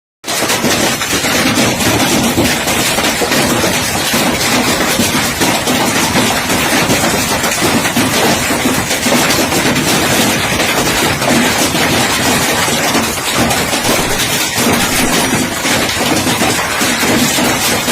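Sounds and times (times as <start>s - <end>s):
heavy hail clattering: 0.2s - 17.9s.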